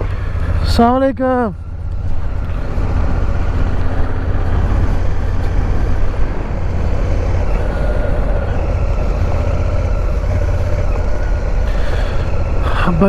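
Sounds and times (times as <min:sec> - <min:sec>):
motorcycle engine rumbling: 0:00.0 - 0:13.0.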